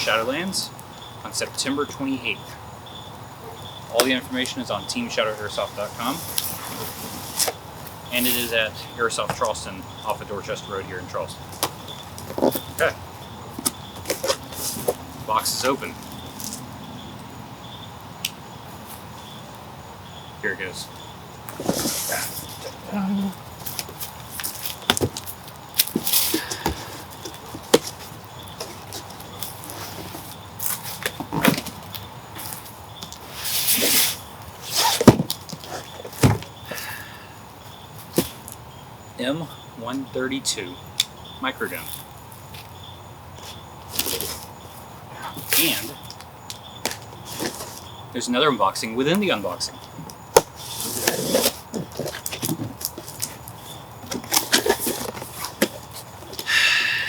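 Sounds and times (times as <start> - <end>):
cardboard scraping and rustling: 5.5 - 8.6, 11.5 - 16.6, 21.5 - 36.8, 43.4 - 44.8, 46.8 - 48.0, 50.4 - 56.5.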